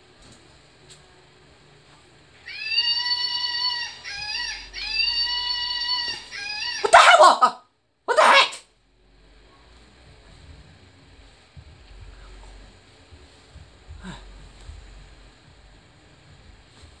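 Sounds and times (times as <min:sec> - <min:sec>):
loud wailing screams: 0:02.4 - 0:08.6.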